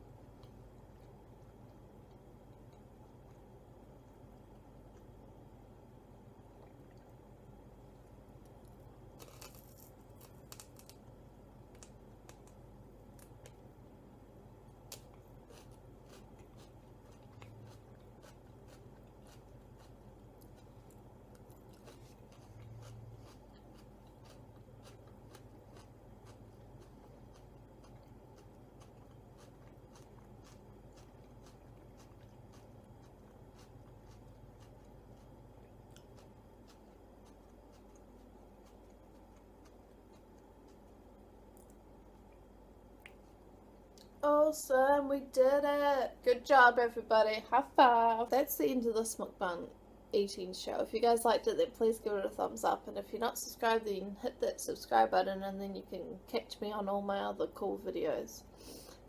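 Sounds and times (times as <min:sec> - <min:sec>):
low steady hum: 0:00.0 - 0:59.0
crunchy chewing: 0:00.2 - 0:05.4, 0:06.4 - 0:13.7, 0:14.7 - 0:44.1.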